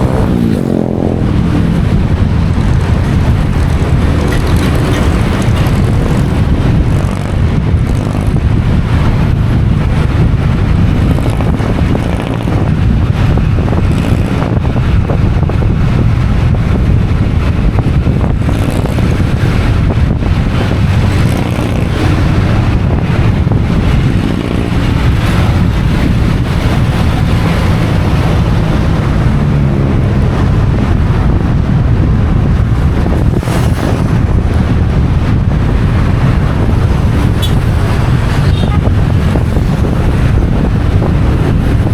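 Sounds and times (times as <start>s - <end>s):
motorcycle engine running: 0.0s - 41.9s
wind rumble on microphone: 0.0s - 41.9s.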